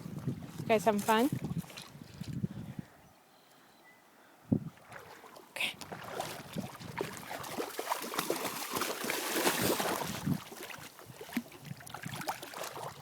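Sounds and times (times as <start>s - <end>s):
dogs splashing in river water: 4.8s - 13.0s.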